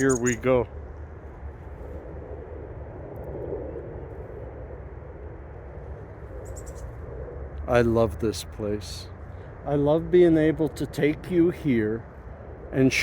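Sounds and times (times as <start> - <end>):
distant engine rumble: 0.0 - 13.0.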